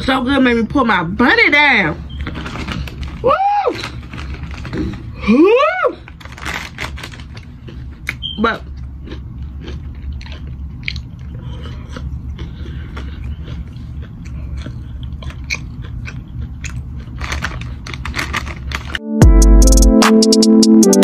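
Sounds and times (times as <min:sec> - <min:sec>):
person chewing crunchy food: 0:02.2 - 0:05.2, 0:06.0 - 0:19.0
electronic music with a beat: 0:19.0 - 0:21.0.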